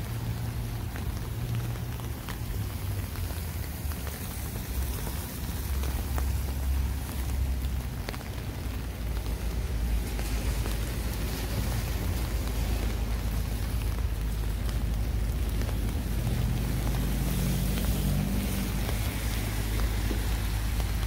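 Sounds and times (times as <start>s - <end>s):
sharp drip ticks: 0.0s - 21.0s
steady rain on pavement: 0.0s - 21.0s.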